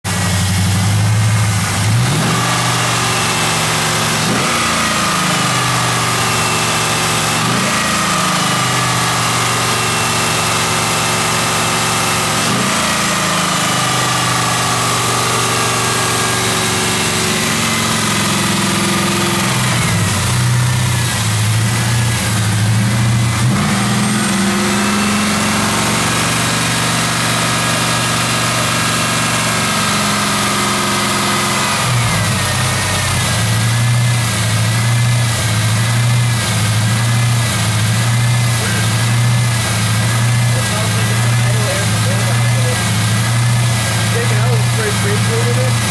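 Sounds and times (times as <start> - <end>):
car engine idling and revving: 0.0 - 45.9.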